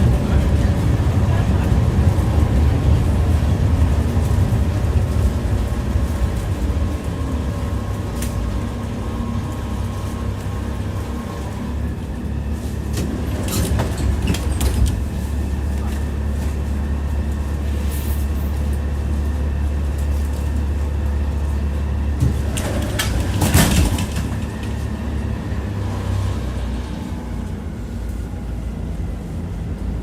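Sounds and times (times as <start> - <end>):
tram droning: 0.0 - 30.0
wheels clattering over rail joints: 12.8 - 16.7, 22.1 - 25.0.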